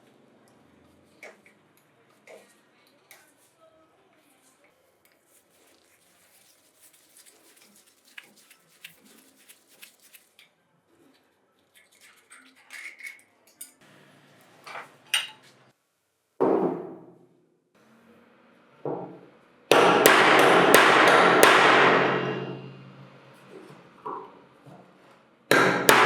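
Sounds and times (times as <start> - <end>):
metal parts clicking and clinking: 11.7 - 13.8
hammer blow on metal: 19.7 - 24.5.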